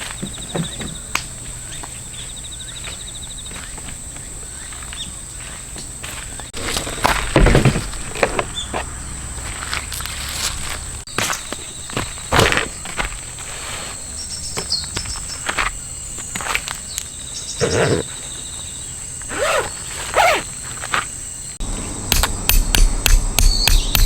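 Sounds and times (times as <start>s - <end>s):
insects buzzing: 0.0s - 24.0s
scuffs and rustles: 1.4s - 21.4s
sharp taps and knocks: 22.1s - 24.0s.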